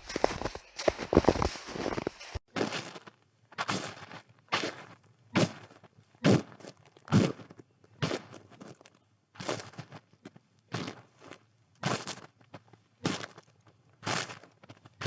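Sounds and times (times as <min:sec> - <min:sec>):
footsteps crunching in snow: 0:00.0 - 0:02.4.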